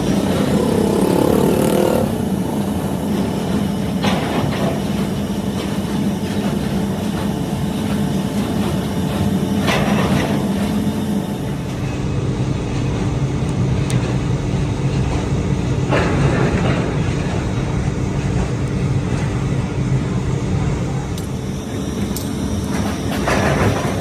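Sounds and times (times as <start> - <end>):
motor humming: 0.0 - 3.9.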